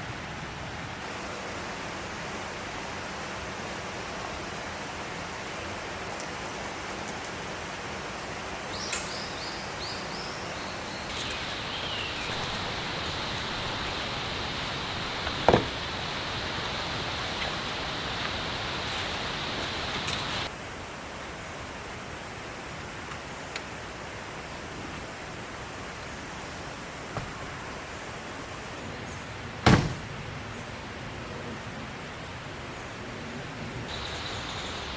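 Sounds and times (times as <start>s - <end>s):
steady rain hiss: 0.0s - 8.8s, 9.8s - 34.9s
bird chirps: 11.1s - 20.5s, 33.9s - 34.9s
sharp knock: 15.2s - 15.8s.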